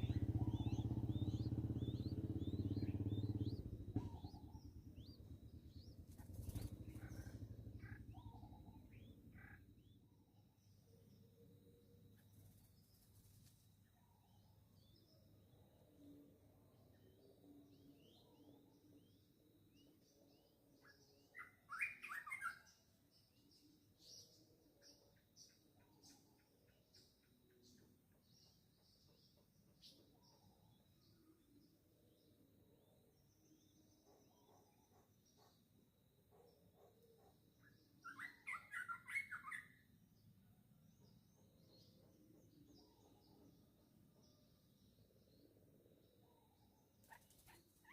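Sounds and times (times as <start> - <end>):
loud bird chirps: 0.0 - 10.0, 20.8 - 22.8, 36.3 - 39.9
faint distant bird calls: 0.0 - 47.9.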